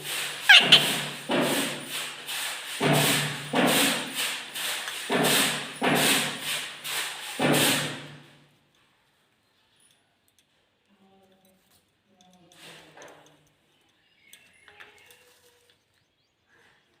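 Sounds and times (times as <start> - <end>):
parrot speech-like calls: 0.4 - 1.2
parrot falling whistle: 0.5 - 1.0.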